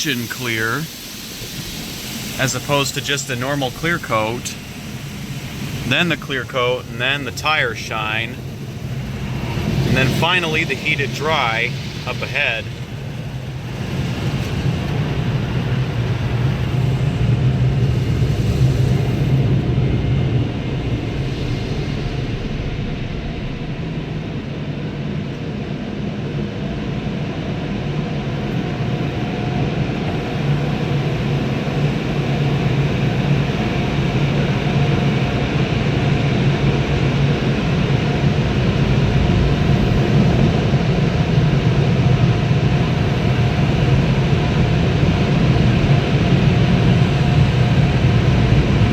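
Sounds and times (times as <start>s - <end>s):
dryer blowers rushing air: 0.0s - 48.9s.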